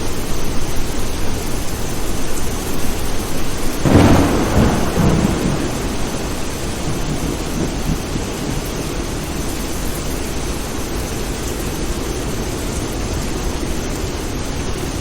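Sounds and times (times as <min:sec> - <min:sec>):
steady rain: 0:00.0 - 0:15.0
thunder clap and rumble: 0:02.5 - 0:12.5.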